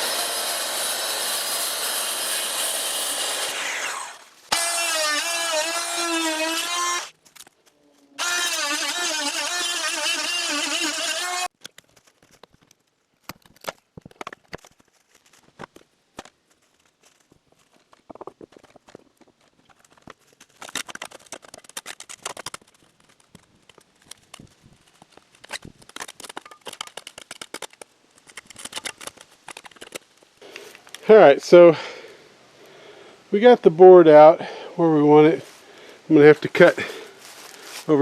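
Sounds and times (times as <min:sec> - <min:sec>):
particle board cracking and snapping: 0:11.6 - 0:30.2.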